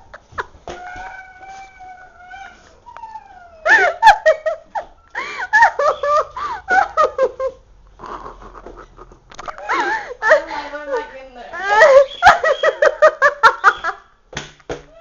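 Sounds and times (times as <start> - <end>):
girl whining: 0.7 - 4.0
girl squealing and giggling: 11.6 - 14.0.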